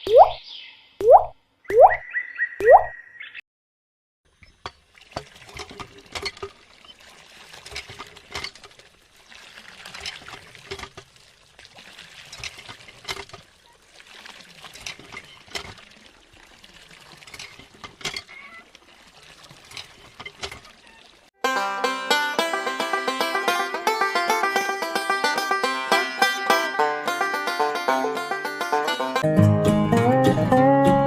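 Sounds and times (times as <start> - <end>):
water pouring and trickling: 4.3 - 21.4, 22.4 - 29.2
small splashes and clicks: 4.4 - 21.4.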